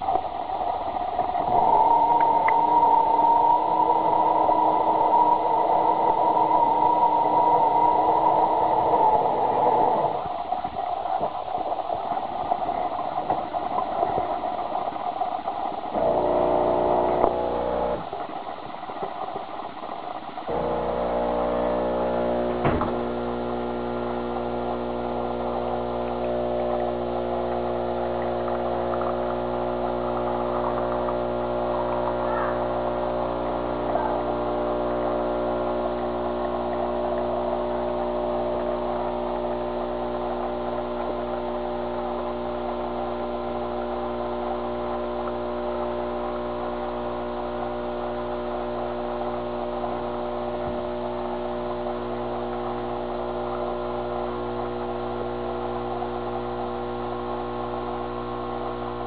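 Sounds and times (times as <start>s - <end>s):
espresso machine humming: 1.1s - 10.3s, 16.0s - 18.2s, 20.5s - 46.8s.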